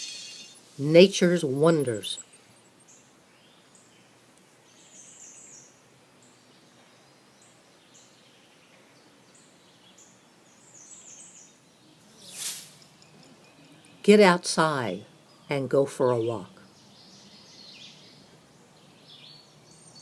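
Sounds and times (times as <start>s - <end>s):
faint songbirds chirping: 0.0s - 20.0s
soft outdoor hiss: 0.0s - 20.0s
short rush of noise: 12.2s - 13.0s.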